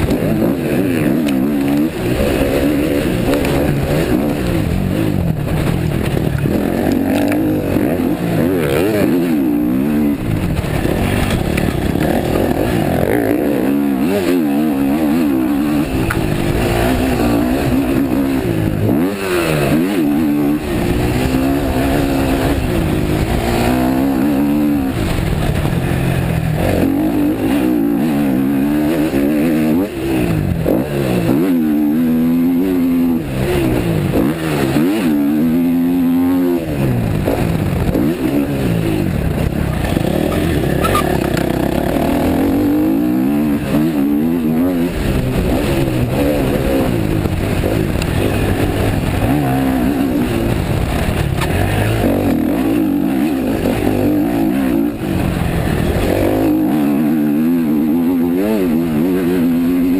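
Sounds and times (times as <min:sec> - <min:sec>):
racing motorcycle engine: 0:00.0 - 0:59.9
wind rushing over microphone: 0:00.0 - 0:59.9.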